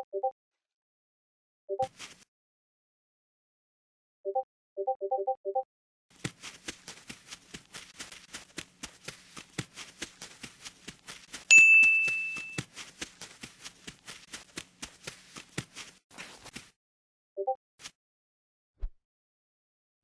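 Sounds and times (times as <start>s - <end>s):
bell-like ding: 11.5s - 12.6s.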